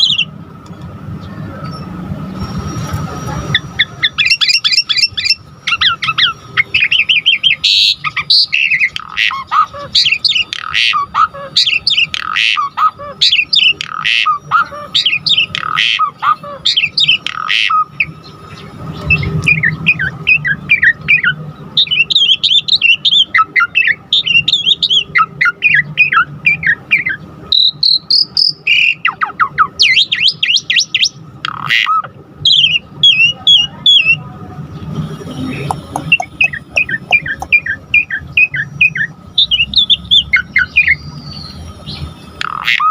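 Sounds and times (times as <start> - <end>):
starling singing: 0.0 - 0.4, 1.6 - 42.9.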